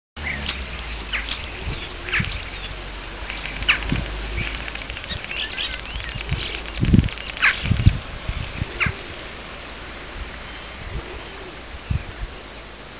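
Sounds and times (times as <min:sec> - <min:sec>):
small bird chirping: 0:00.2 - 0:12.7
low rumble: 0:00.2 - 0:12.9
steady background hiss: 0:00.2 - 0:12.9.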